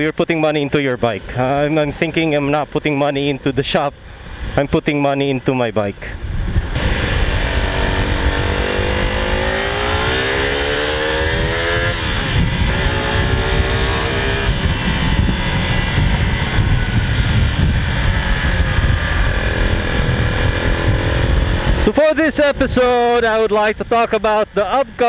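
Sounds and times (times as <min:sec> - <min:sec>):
motorcycle engine accelerating: 0:06.4 - 0:23.1.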